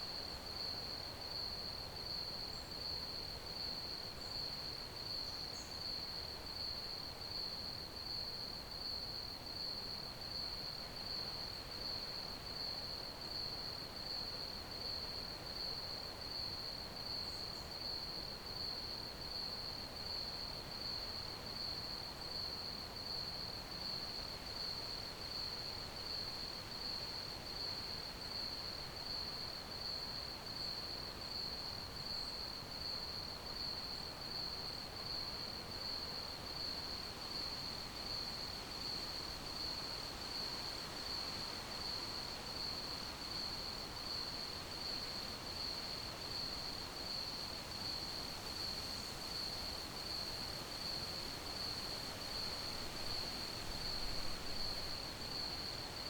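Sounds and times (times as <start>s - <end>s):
faint background hiss: 0.0s - 56.0s
crickets chirping: 14.8s - 56.0s.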